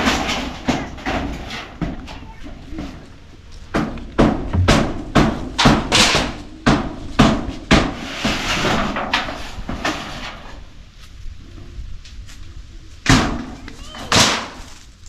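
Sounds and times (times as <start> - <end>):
hammer blows knocking: 0.0 - 9.3.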